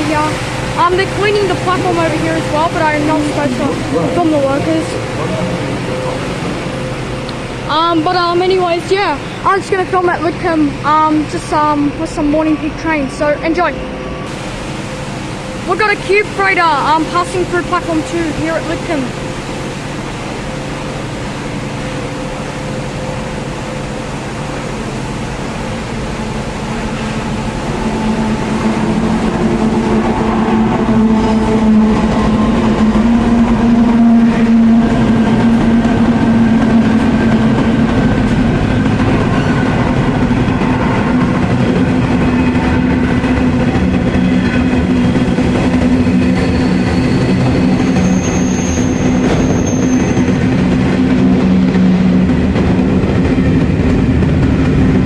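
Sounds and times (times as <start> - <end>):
locomotive engine drone: 0.0 - 55.0
high-pitched wheel squeal: 45.9 - 50.5.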